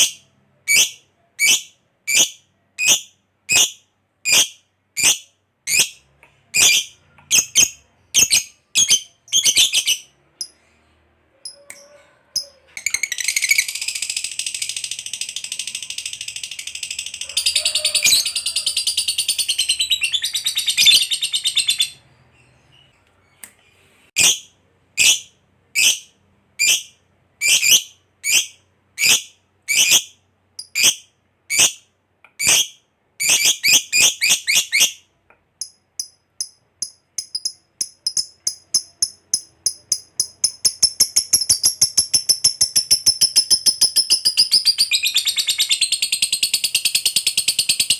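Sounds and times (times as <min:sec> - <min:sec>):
bird chirping: 0:00.0 - 0:47.9
bird chattering trill: 0:35.6 - 0:47.9.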